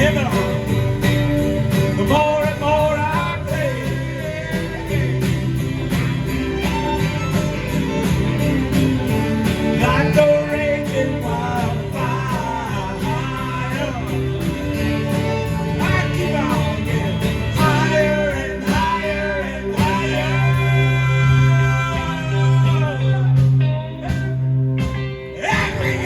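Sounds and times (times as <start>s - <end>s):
bass: 0.0s - 26.0s
guitar: 0.0s - 26.0s
steady drum beat: 0.0s - 26.0s
person singing: 2.0s - 5.9s, 9.7s - 14.7s, 15.6s - 24.4s, 25.4s - 26.0s.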